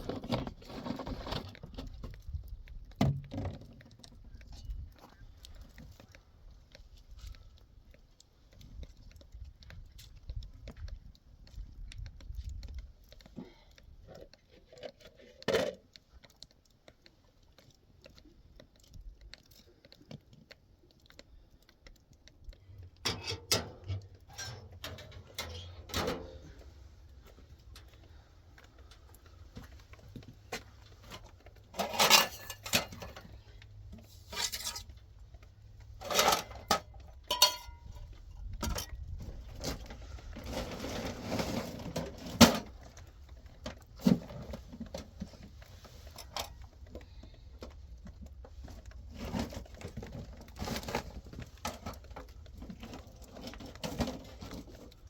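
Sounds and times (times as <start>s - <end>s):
dishes and pots clinking: 36.1s - 37.9s.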